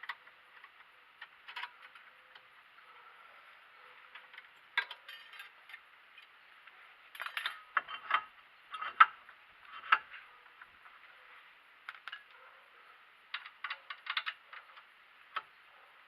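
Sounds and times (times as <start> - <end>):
metal tools clinking: 4.2 - 5.8, 7.1 - 9.0.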